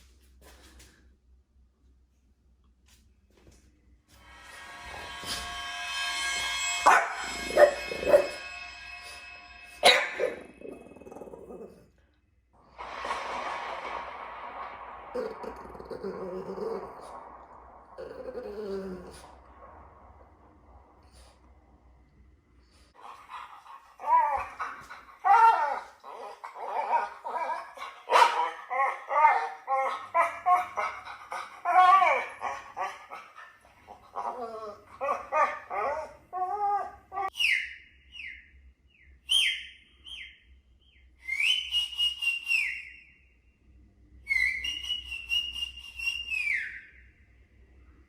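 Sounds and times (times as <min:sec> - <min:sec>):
dog barking: 0:09.8 - 0:10.6, 0:25.3 - 0:29.5.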